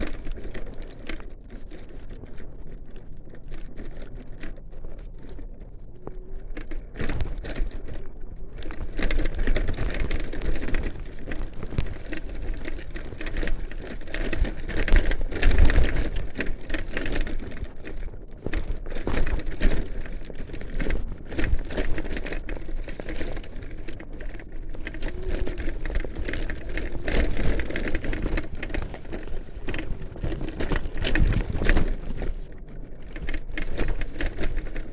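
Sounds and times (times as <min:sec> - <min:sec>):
tyres crackling on rough ground: 0:00.0 - 0:34.9.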